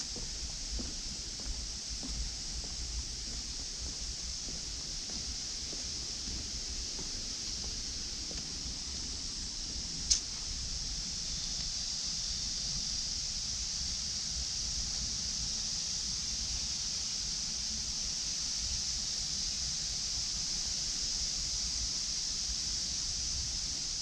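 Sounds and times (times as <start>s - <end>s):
insect chorus drone: 0.0s - 24.0s.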